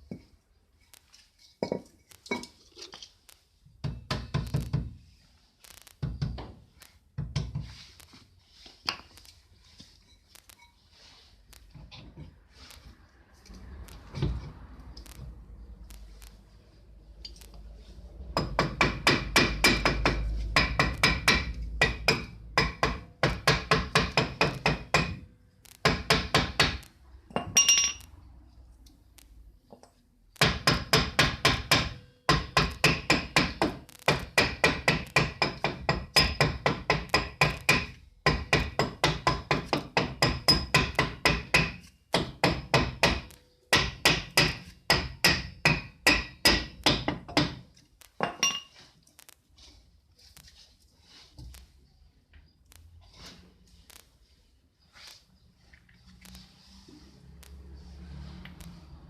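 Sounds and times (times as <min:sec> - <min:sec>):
hammer tapping on metal: 0:18.4 - 0:28.0, 0:30.4 - 0:47.6.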